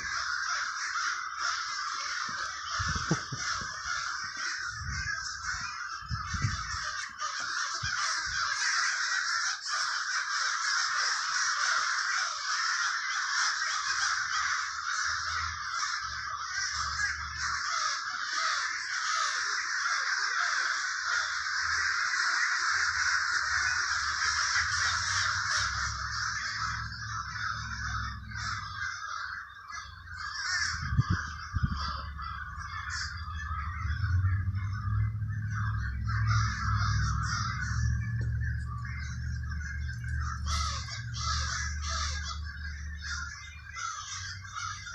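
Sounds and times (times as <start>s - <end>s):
crows cawing: 0.0s - 44.9s
low rumble: 2.4s - 7.0s, 29.9s - 43.6s.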